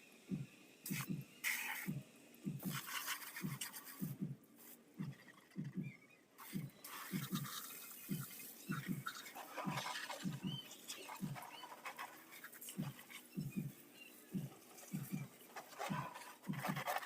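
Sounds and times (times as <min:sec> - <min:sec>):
scrubbing on motorbike body: 0:02.7 - 0:05.7, 0:06.4 - 0:17.0.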